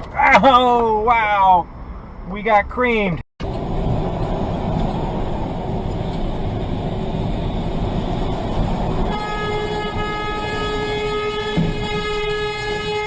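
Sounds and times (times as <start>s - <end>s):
train rumbling: 3.4s - 12.4s
train horn long note: 9.1s - 13.0s.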